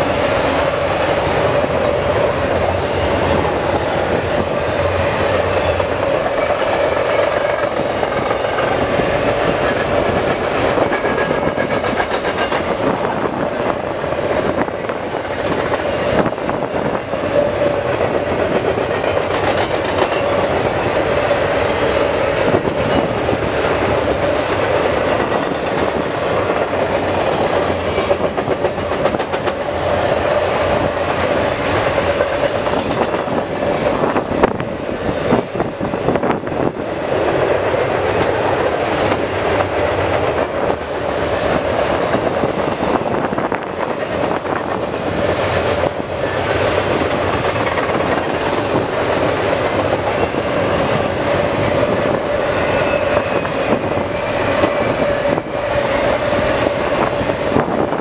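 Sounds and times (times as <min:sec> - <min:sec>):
freight train wheels on rails: 0:00.0 - 0:58.0
wheels clacking over rail: 0:14.5 - 0:34.6.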